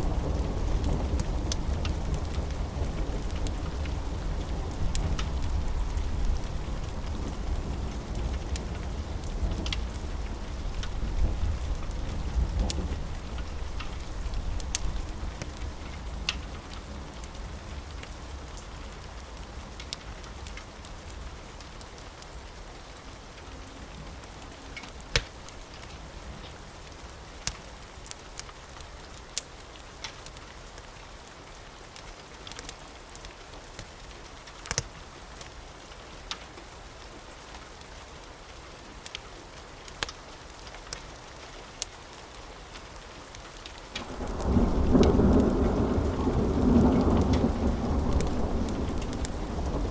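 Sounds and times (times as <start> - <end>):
steady rain: 0.0 - 49.9
wood fire crackling: 0.0 - 49.9
thunder rumble: 44.0 - 49.9.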